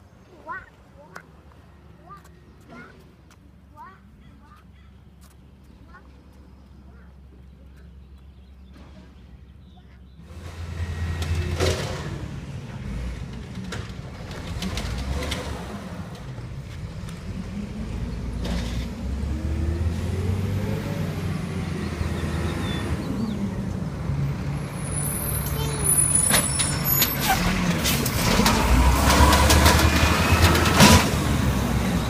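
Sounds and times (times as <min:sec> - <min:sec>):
garbage truck engine running: 0:10.3 - 0:32.0
truck squeaks: 0:24.6 - 0:32.0.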